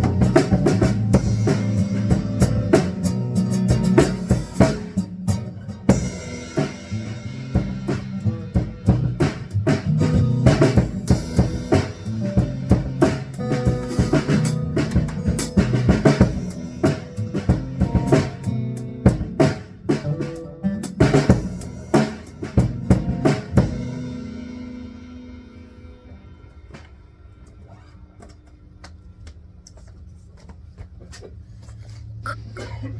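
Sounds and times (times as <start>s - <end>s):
band jamming instrumentally: 0.0s - 25.4s
drum kit hits: 0.0s - 25.6s.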